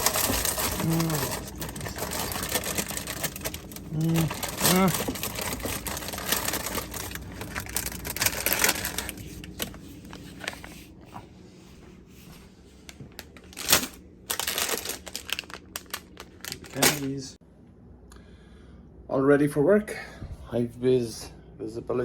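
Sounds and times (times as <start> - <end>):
bags rustling and clicking: 0.0 - 10.8, 13.1 - 17.3.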